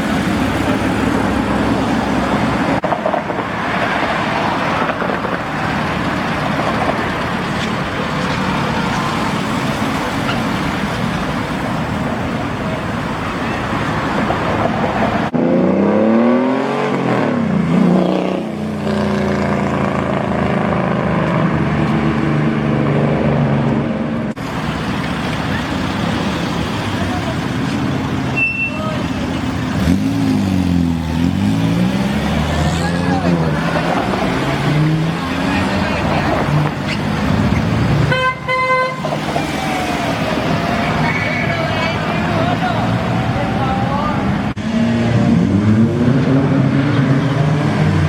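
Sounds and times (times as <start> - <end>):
cars driving by: 0.0 - 48.0
car engine revving: 15.2 - 27.5, 29.3 - 38.2, 39.0 - 48.0.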